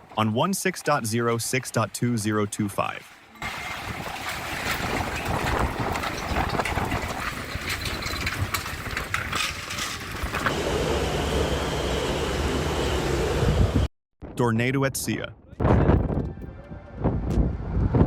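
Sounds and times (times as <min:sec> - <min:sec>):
strong wind buffeting microphone: 0:03.4 - 0:11.6, 0:12.8 - 0:13.9, 0:15.5 - 0:18.0.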